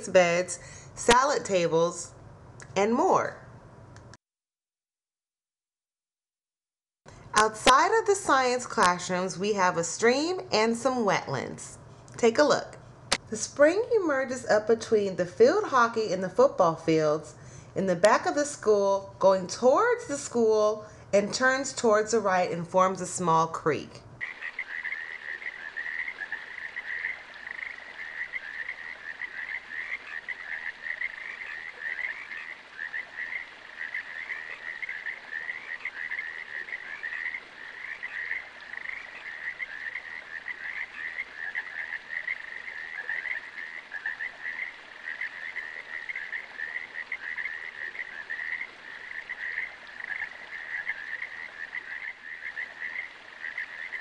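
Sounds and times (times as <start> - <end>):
frogs chorus trilling: 24.2 - 54.0.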